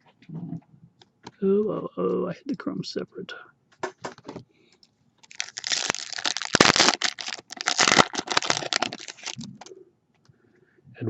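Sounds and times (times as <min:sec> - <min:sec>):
wrapper and cards crinkling: 0:05.2 - 0:09.7.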